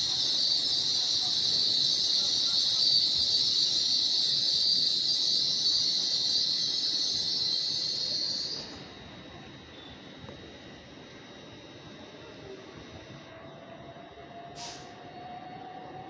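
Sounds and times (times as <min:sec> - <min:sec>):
train air hiss: 0:14.5 - 0:15.1.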